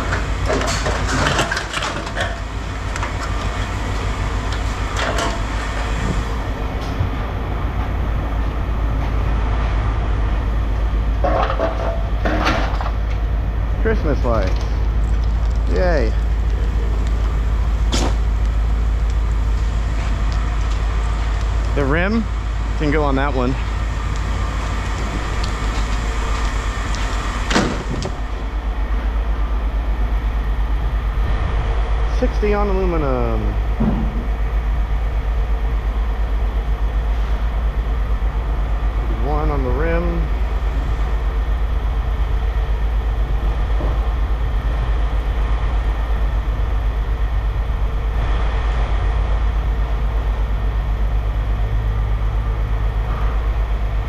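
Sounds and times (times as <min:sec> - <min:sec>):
scrap metal clanking: 0:00.0 - 0:06.2, 0:11.2 - 0:13.0
machinery rumbling: 0:00.0 - 0:54.0
loud metal clank: 0:11.2 - 0:13.0, 0:27.5 - 0:28.1, 0:33.8 - 0:34.4
scrap metal knocks: 0:33.8 - 0:34.4.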